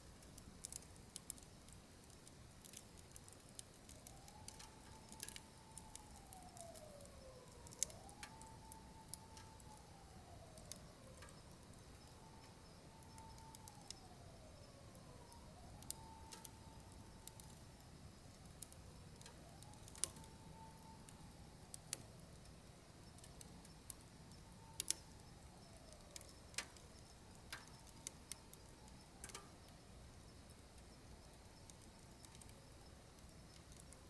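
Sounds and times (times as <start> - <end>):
wood fire crackling and popping: 0.0 - 34.0
faint whistling tone: 4.4 - 21.5.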